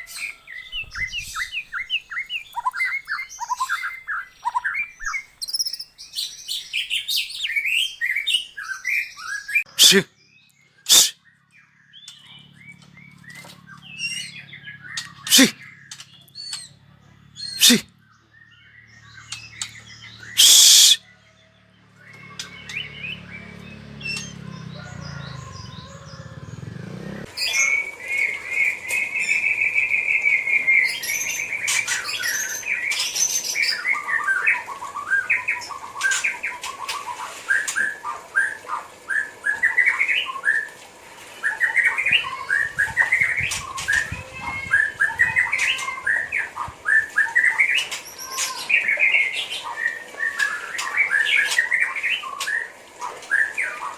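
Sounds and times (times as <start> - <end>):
bird singing whistles and trills: 18.5 - 21.1.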